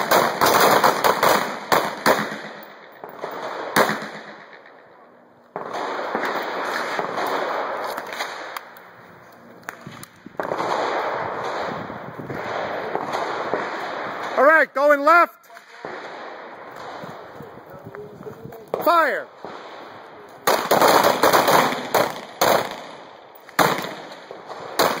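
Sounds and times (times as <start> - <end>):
pistol shots: 0.0 - 4.8, 5.5 - 8.9, 9.6 - 14.4, 18.7 - 25.0.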